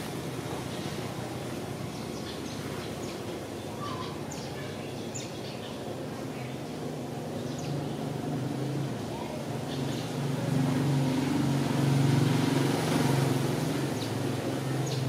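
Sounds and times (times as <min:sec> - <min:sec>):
birds chirping: 0:00.5 - 0:08.2, 0:13.7 - 0:15.0.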